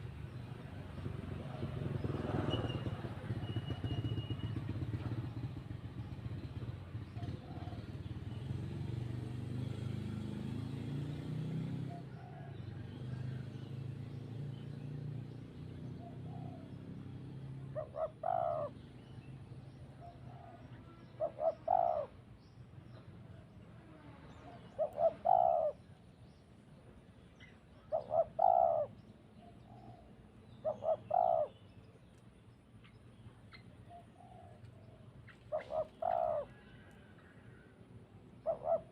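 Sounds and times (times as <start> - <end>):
dove cooing: 6.6 - 8.2, 16.0 - 16.7, 17.6 - 18.8, 20.0 - 22.2, 24.6 - 25.9, 27.8 - 31.6, 33.9 - 37.2, 38.4 - 38.9.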